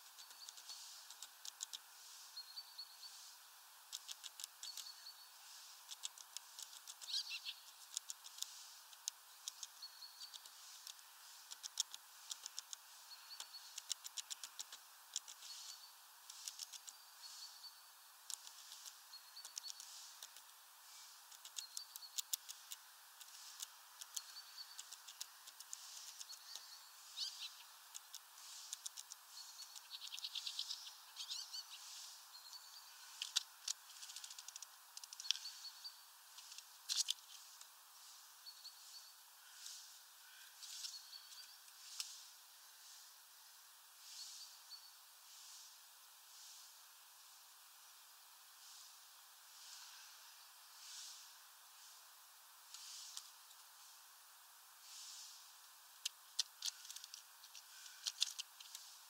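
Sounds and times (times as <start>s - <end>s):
fast dry ticks: 0.0s - 2.4s, 3.0s - 38.3s, 39.5s - 43.1s, 52.7s - 54.1s, 54.9s - 59.0s.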